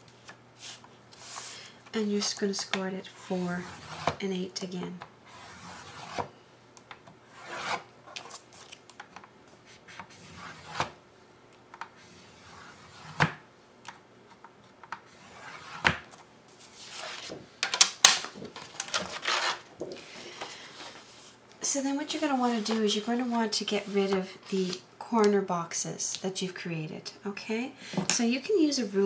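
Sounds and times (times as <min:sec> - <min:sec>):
tool scraping along paper: 0:03.5 - 0:04.2, 0:05.3 - 0:06.3, 0:07.3 - 0:08.4, 0:09.7 - 0:10.9, 0:19.0 - 0:19.6.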